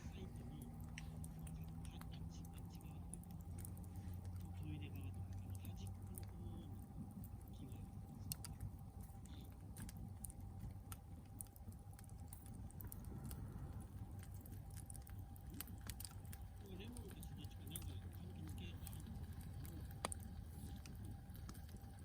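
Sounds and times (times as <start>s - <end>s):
campfire crackling: 0.0s - 22.0s
low fire rumble: 0.0s - 22.0s.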